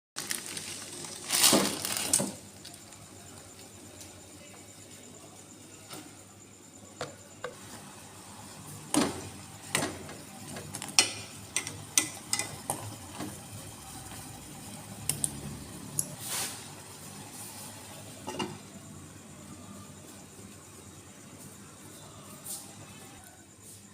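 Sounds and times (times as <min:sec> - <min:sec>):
kitchen utensils and dishes clacking: 0:10.9 - 0:12.9, 0:18.2 - 0:18.6.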